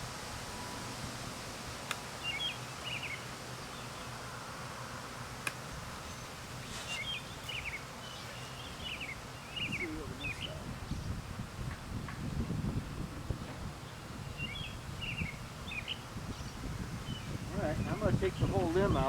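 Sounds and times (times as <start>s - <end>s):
honeybee swarm buzzing: 0.2s - 19.0s
small bird chirping: 6.0s - 11.2s, 13.8s - 19.0s.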